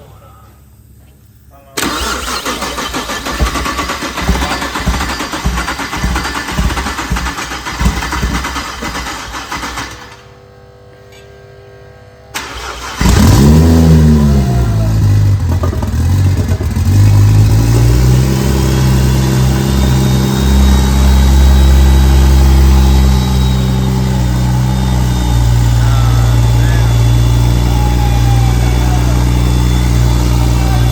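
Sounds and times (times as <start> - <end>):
engine revving: 1.8 - 10.1, 12.4 - 30.9
engine cranking on starter: 1.8 - 10.3, 12.3 - 17.4
engine idling: 1.8 - 10.3, 12.4 - 30.9.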